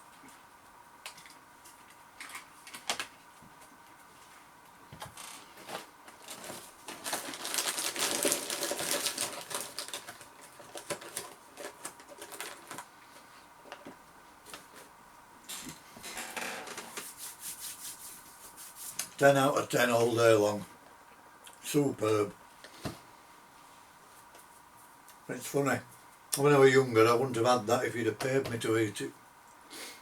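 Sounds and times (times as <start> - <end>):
crackers being chewed crunchily: 6.1 - 13.0.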